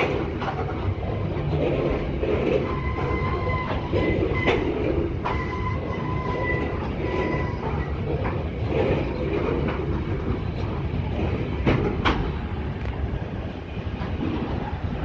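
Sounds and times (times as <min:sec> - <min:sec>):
wheels knocking on rail joints: 0:00.0 - 0:13.2
train wheels rumbling on rail: 0:00.0 - 0:15.0
high wheel squeal: 0:02.6 - 0:08.2.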